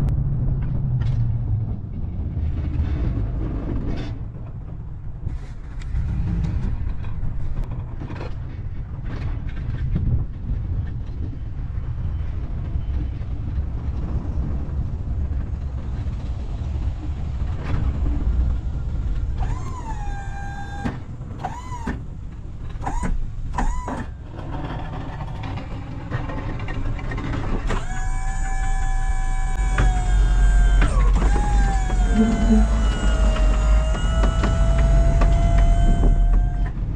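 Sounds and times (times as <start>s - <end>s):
vehicle engine rumbling: 11.5s - 36.9s
high-pitched squeals: 19.4s - 22.0s, 27.7s - 36.9s.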